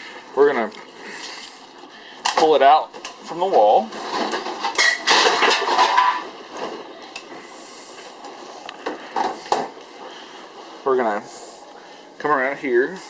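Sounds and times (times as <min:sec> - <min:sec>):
rollers scraping across floor: 0:03.4 - 0:11.6.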